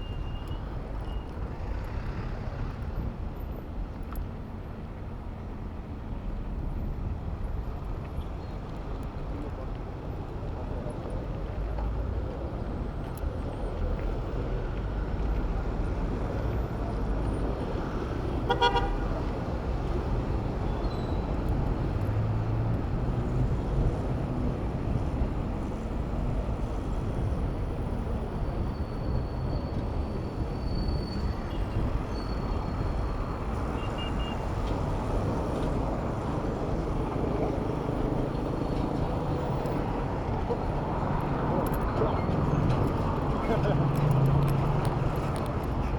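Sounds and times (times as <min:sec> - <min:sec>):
road traffic noise: 0:00.0 - 0:06.3, 0:06.9 - 0:45.9
vehicle horn toot: 0:18.5 - 0:19.1.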